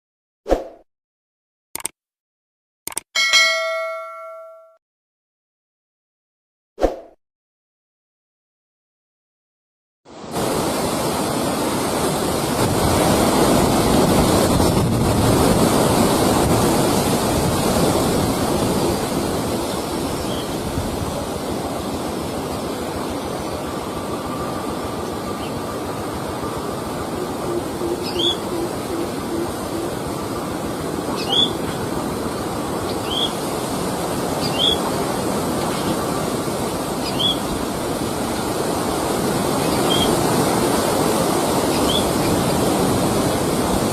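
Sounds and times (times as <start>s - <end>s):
steady rushing noise: 10.1s - 43.9s.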